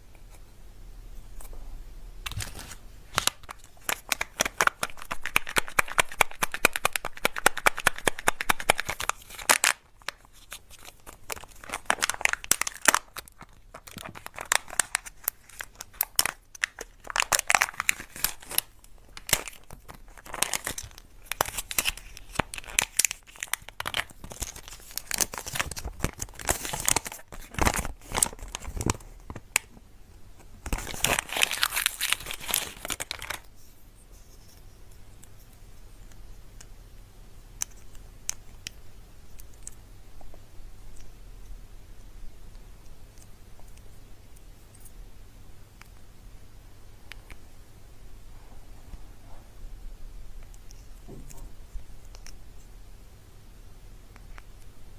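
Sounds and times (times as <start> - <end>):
wrappers crinkling and tearing: 2.2 - 29.6, 30.6 - 33.5.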